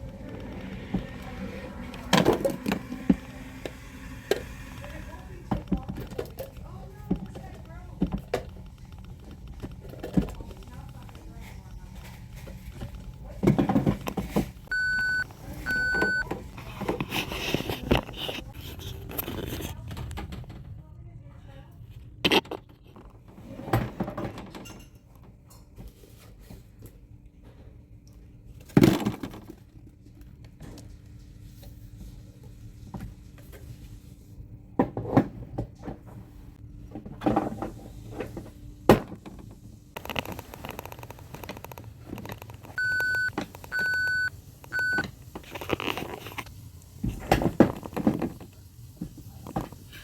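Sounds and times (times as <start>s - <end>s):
toy electronic beeps: 14.7s - 16.2s, 42.8s - 45.0s.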